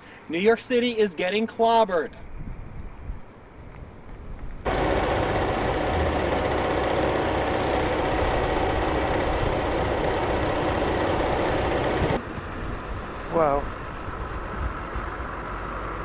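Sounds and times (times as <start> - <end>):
heavy vehicle engine running: 4.7 - 12.2.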